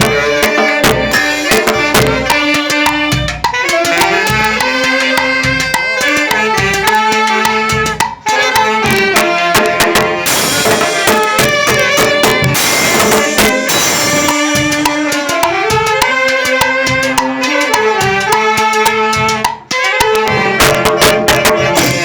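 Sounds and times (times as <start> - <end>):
band playing with drums: 0.0 - 22.0.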